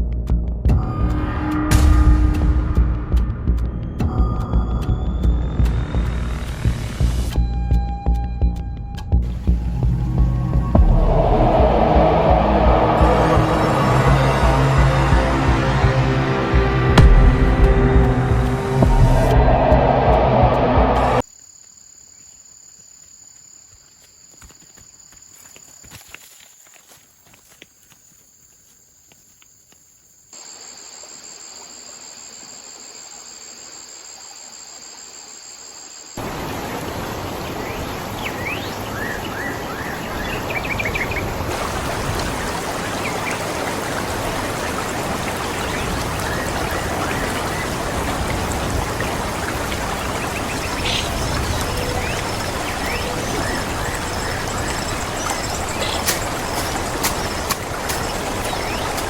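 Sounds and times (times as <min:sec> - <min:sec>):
loud steady rushing noise: 0:09.3 - 0:21.2
high insect drone: 0:21.2 - 0:39.2, 0:41.5 - 0:59.0.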